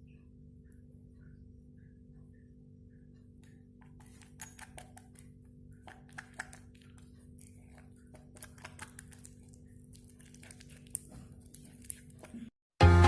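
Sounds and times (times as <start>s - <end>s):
low steady hum: 0.0s - 12.5s.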